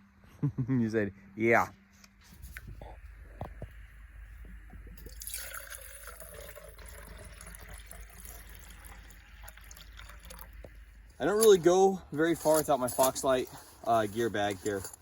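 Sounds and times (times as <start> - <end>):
water dripping and trickling: 4.7 - 11.7.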